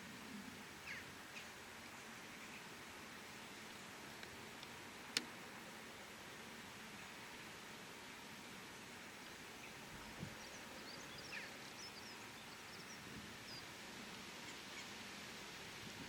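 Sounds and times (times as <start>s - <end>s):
faint outdoor background noise: 0.0s - 16.0s
bird chirps: 10.4s - 13.7s.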